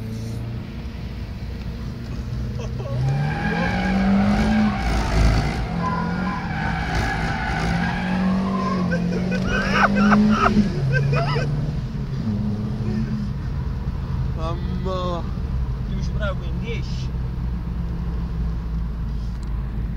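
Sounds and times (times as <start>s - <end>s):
tyres squealing: 2.6s - 11.6s
car engine revving hard: 2.7s - 13.4s.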